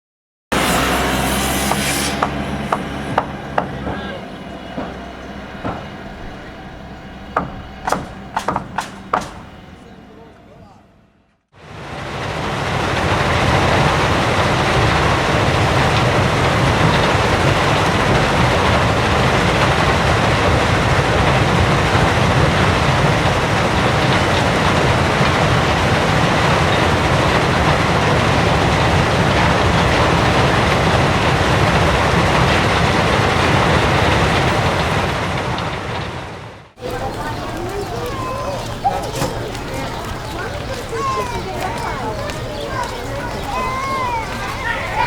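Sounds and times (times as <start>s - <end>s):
loud rumbling with high whine: 0.5s - 10.0s.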